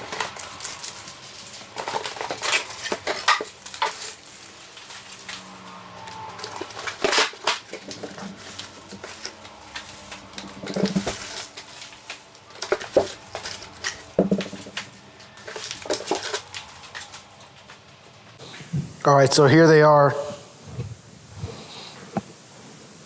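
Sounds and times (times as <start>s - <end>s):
packaging rustling: 0.0s - 18.0s
plant pots knocking and clattering: 10.2s - 11.5s, 12.6s - 16.5s.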